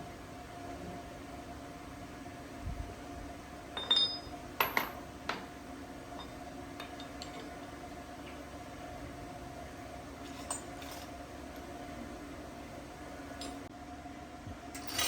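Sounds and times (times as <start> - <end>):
steady machine hum: 0.0 - 15.0
metal tools clinking: 3.8 - 5.0, 14.7 - 15.0.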